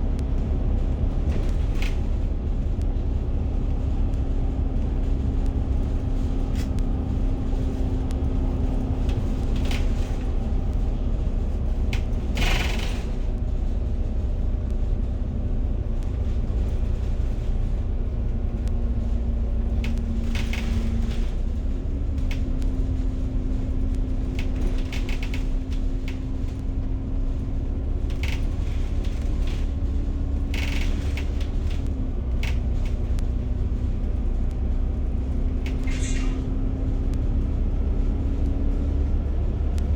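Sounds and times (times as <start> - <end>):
bus body rattling: 0.0 - 39.9
bus engine and road rumble: 0.0 - 39.9.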